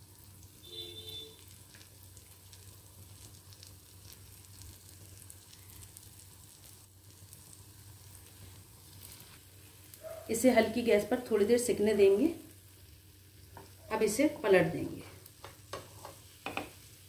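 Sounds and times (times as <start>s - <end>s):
bread frying in butter: 0.0s - 17.0s.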